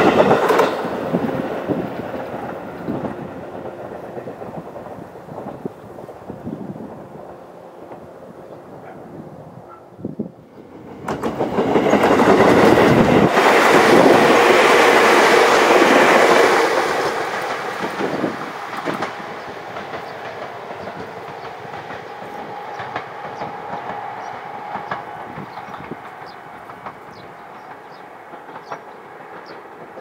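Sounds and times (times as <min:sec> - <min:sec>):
train clicks: 0:00.0 - 0:08.2, 0:10.5 - 0:30.0
train passing with clatter: 0:00.0 - 0:30.0.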